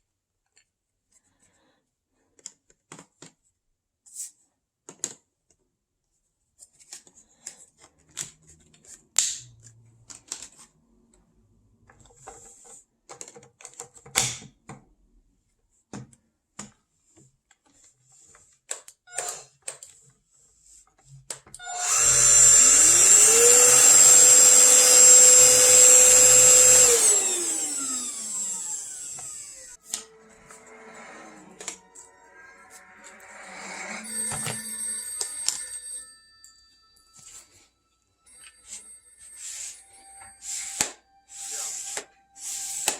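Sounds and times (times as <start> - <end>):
vacuum motor whining: 21.6 - 31.8.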